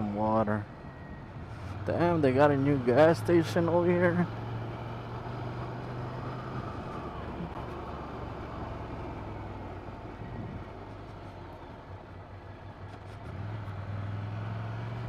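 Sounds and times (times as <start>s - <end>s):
road and wind noise: 0.0s - 15.0s
motorcycle engine running: 1.7s - 12.1s.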